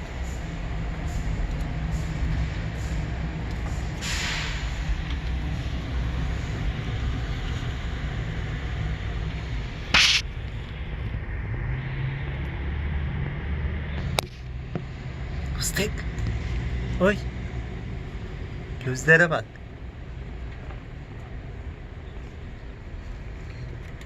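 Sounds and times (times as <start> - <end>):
vehicle rumble: 0.0 - 24.0
loud hiss: 4.0 - 4.8, 9.9 - 10.2.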